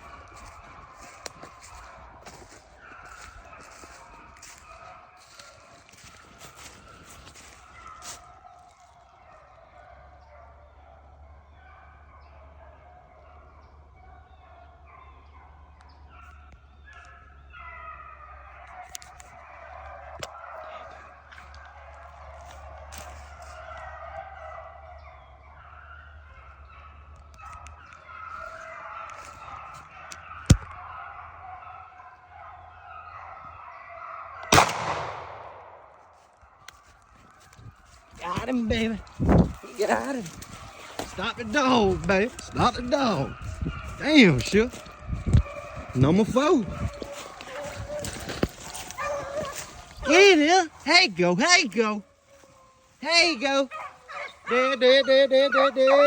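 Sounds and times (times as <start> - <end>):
hounds baying: 0.0 - 56.0
shotgun shot: 34.5 - 35.9.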